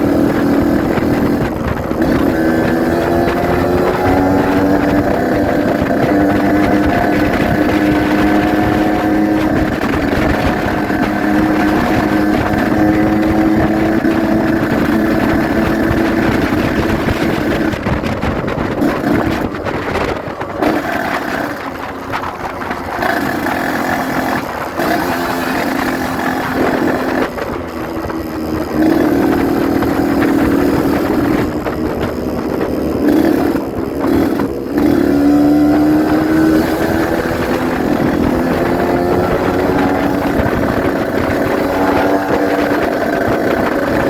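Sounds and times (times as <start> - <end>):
two-stroke motorcycle engine running: 0.0 - 44.0.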